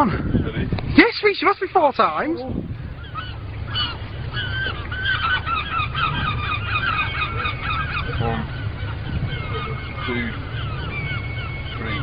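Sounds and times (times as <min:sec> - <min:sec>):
low steady rumble: 0:00.0 - 0:12.0
flock of birds squawking: 0:00.3 - 0:12.0.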